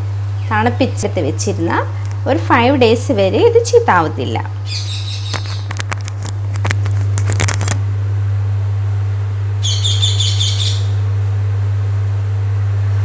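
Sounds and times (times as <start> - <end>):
steady low hum: 0.0 - 13.0
high bird chirps: 4.7 - 5.7, 9.6 - 11.0.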